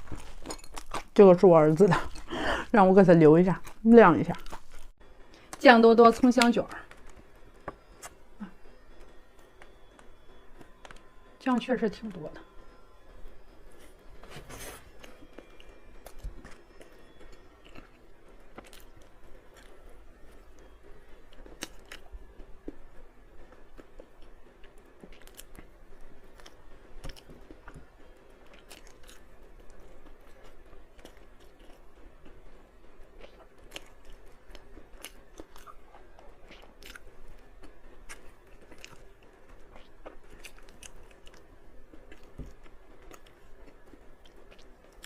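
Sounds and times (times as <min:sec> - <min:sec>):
person chewing crunchy snack: 0:00.0 - 0:02.7, 0:03.5 - 0:05.6, 0:14.6 - 0:22.8, 0:23.7 - 0:32.4, 0:33.1 - 0:45.0.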